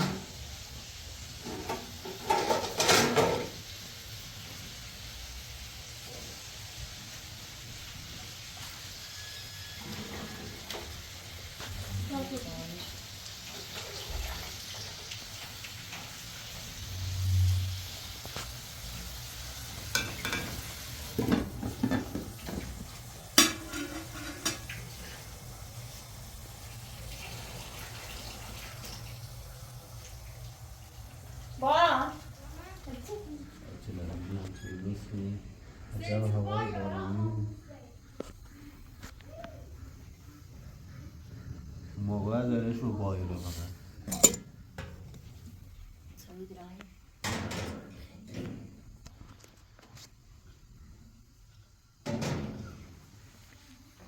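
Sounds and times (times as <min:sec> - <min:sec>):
food sizzling in a pan: 0:00.0 - 0:47.6
utensil clinking against pot: 0:23.4 - 0:24.7, 0:44.0 - 0:45.0.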